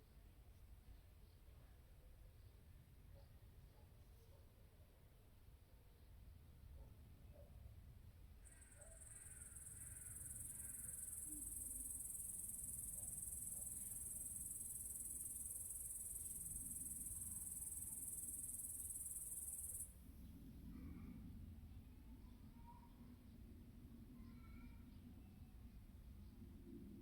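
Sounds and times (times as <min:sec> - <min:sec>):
high-pitched insect trill: 0:08.5 - 0:19.9.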